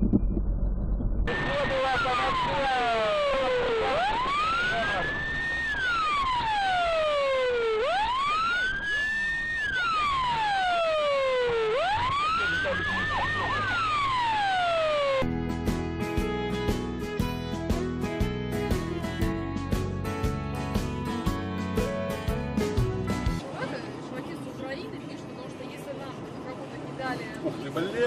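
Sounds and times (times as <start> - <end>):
emergency siren wailing: 1.3 - 15.3
guitar music: 15.2 - 23.4.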